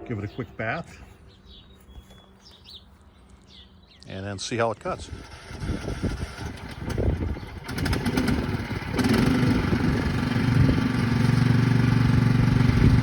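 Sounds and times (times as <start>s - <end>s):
lawn tractor engine starting: 5.0s - 13.0s.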